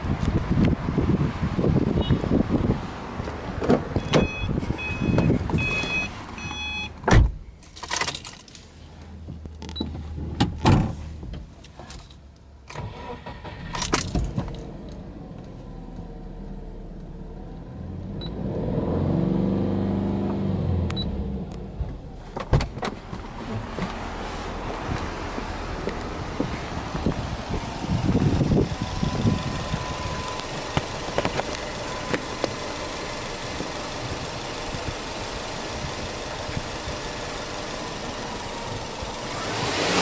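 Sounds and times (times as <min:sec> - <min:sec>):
car door and keys clicking: 0:03.6 - 0:08.7, 0:13.6 - 0:15.0
car warning chime: 0:04.0 - 0:07.0, 0:28.8 - 0:33.0
car engine starting and revving: 0:12.7 - 0:22.4, 0:23.0 - 0:40.0.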